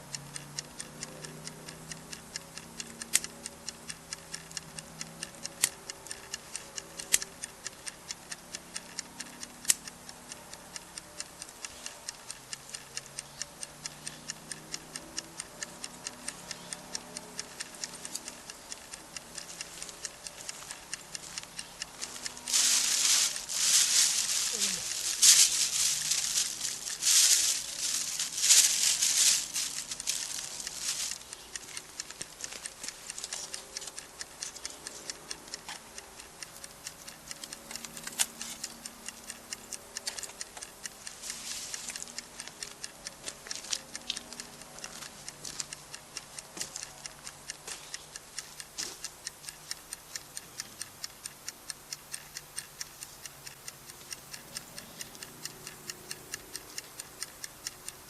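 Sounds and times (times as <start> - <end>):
campfire crackling: 21.9 - 33.0.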